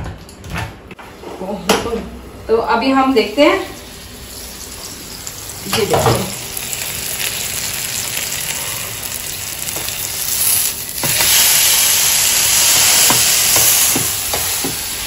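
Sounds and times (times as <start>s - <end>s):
batter sizzling in oil: 3.6s - 15.0s.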